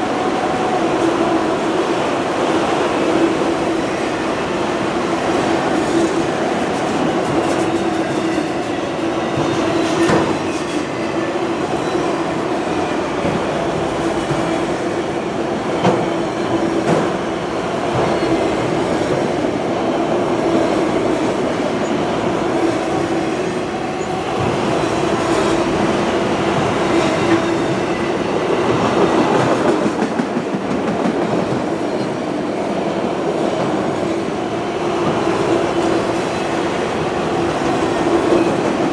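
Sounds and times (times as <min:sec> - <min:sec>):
train rumble: 0:00.0 - 0:38.9
train wheels clacking over rail joints: 0:05.7 - 0:14.8.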